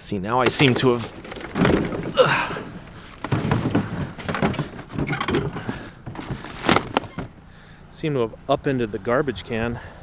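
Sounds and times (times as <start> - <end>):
garbage can and trash clattering: 0.4 - 7.4.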